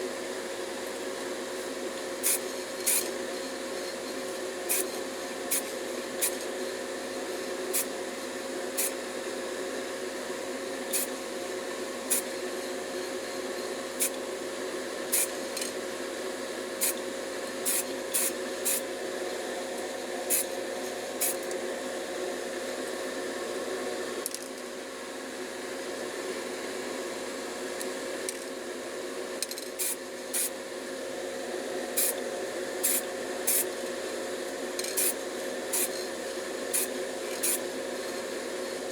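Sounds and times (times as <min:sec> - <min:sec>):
steady mechanical hum: 0:00.0 - 0:38.9
paint spray spurts: 0:32.8 - 0:33.6, 0:36.8 - 0:37.6.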